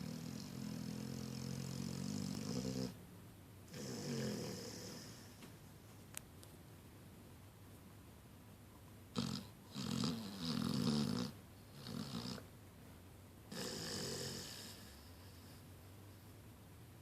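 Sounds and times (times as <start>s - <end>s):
puppy snoring: 0.0s - 3.0s, 3.7s - 5.4s, 9.1s - 12.5s, 13.5s - 15.6s.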